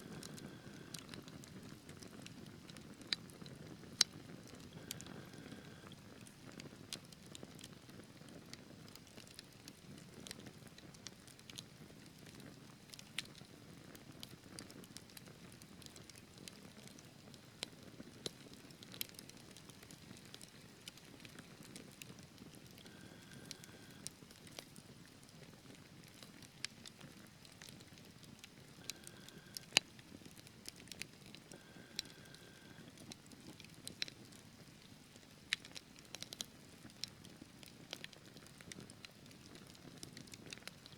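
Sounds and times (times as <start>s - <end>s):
fire flames rumbling: 0.0s - 2.7s
logs crackling and popping: 0.0s - 40.9s.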